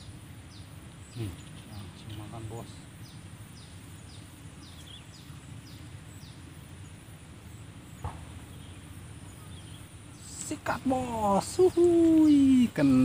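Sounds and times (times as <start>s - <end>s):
bird chirping: 0.0s - 13.0s
sharp knock: 8.0s - 8.4s.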